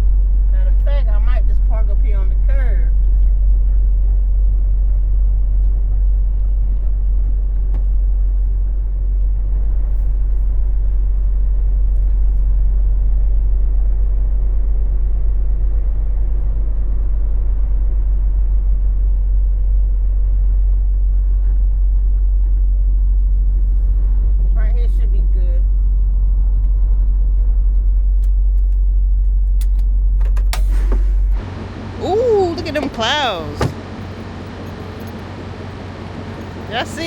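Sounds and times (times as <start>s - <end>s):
truck diesel engine rumbling: 0.0s - 37.0s.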